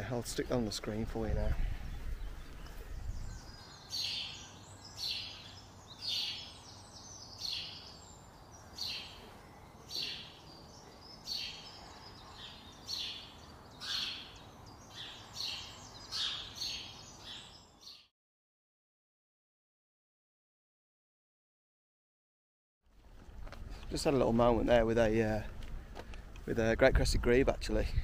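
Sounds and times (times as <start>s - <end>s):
faint outdoor background noise: 0.0s - 18.1s, 22.9s - 28.0s.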